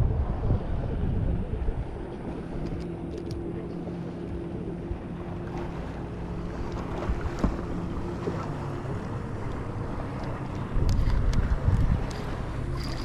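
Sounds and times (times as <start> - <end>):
wind noise on microphone: 0.0 - 3.6, 6.7 - 13.0
boat motor humming: 0.0 - 13.0.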